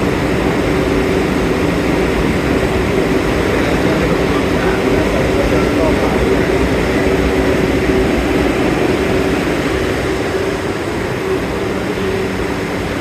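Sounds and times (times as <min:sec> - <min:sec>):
steady hum: 0:00.0 - 0:13.0
subway train rumble: 0:00.0 - 0:13.0.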